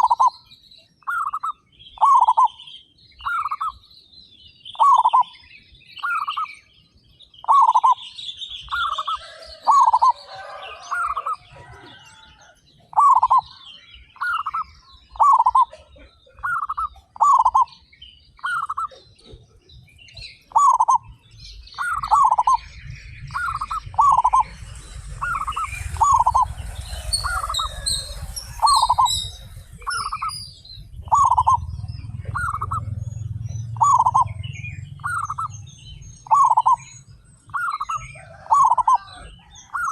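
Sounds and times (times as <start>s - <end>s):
doves cooing: 0.0s - 0.4s, 1.0s - 2.6s, 4.8s - 5.3s, 7.4s - 8.0s, 8.7s - 39.9s
small birds chirping: 0.0s - 39.9s
low rumble: 21.0s - 37.6s.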